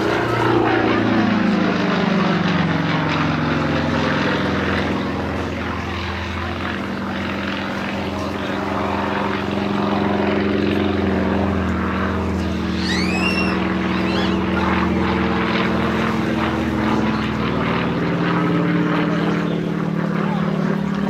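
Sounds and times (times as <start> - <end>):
propeller aircraft engine droning: 0.0 - 21.0
rising whistle-like chirp: 12.7 - 14.7.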